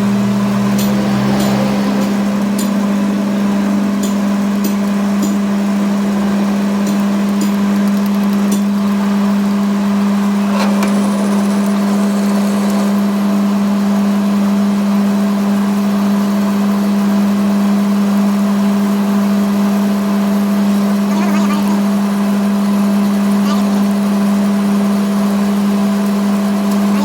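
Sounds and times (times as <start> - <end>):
workshop machine hum: 0.0 - 17.0, 20.6 - 27.0.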